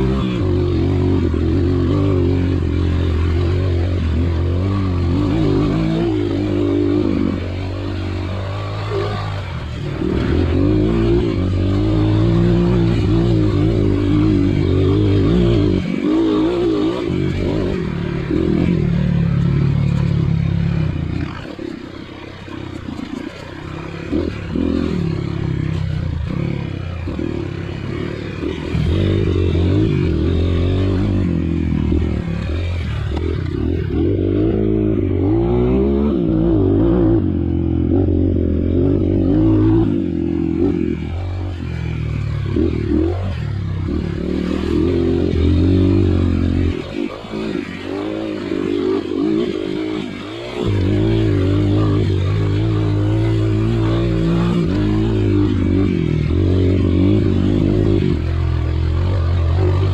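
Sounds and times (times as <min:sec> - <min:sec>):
motorcycle engine revving: 0:00.0 - 0:59.9
clatter and scraping: 0:00.2 - 0:34.2.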